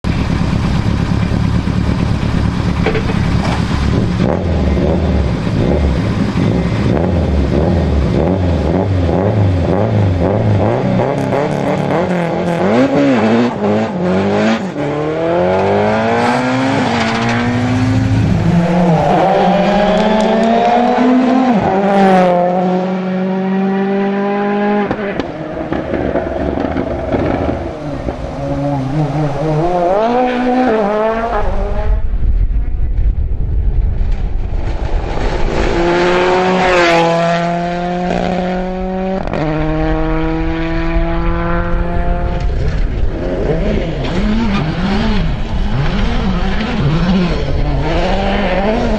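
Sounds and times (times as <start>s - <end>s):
rally car engines revving: 0.0s - 48.9s
low rumbling noise: 16.5s - 23.0s, 23.9s - 48.9s.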